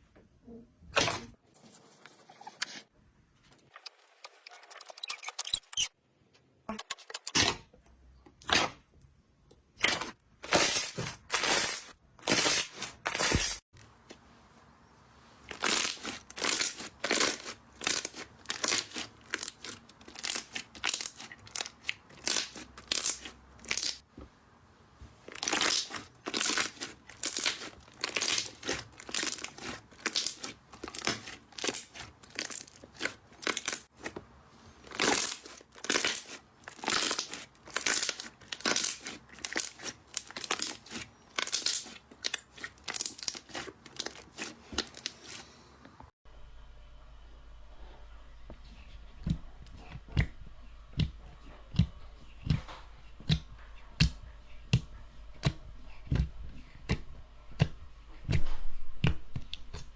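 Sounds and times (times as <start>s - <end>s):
slime squeezed crackly crunches: 15.4s - 24.0s, 25.2s - 34.1s, 34.8s - 45.5s.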